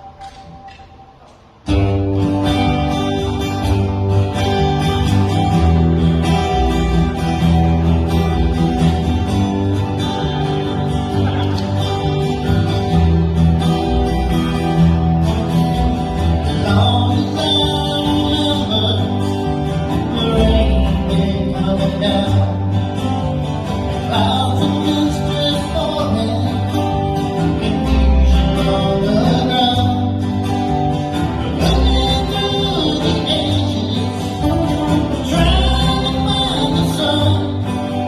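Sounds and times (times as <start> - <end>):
guitar: 0.0 - 38.0
low bass notes: 0.0 - 38.0
person singing: 16.4 - 23.0, 31.3 - 38.0.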